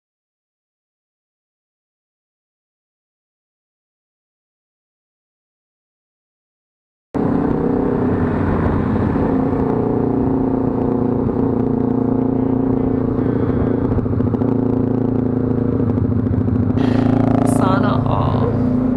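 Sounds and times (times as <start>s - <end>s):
motorcycle engine running: 7.2s - 18.9s.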